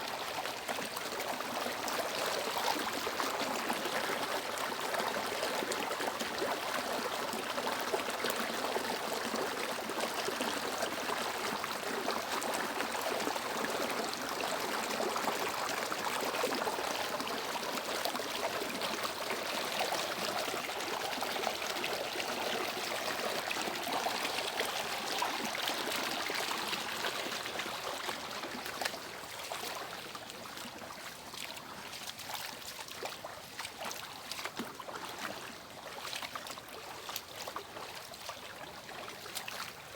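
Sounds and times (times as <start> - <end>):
stream splashing over rocks: 0.0 - 39.9.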